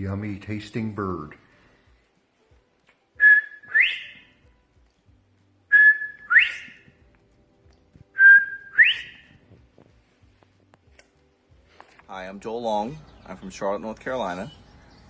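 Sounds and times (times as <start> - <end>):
man whistling bird call: 3.2 - 4.4, 5.7 - 6.9, 8.2 - 9.4.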